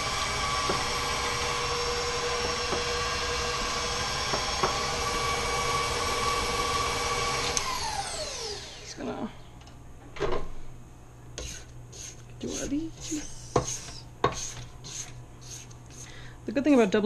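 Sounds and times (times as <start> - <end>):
stand mixer motor whining: 0.0 - 8.9.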